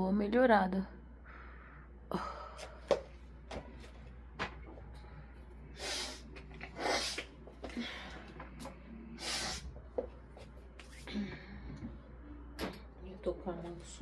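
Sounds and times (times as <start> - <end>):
woman sniffing: 5.8 - 7.3, 9.2 - 9.7.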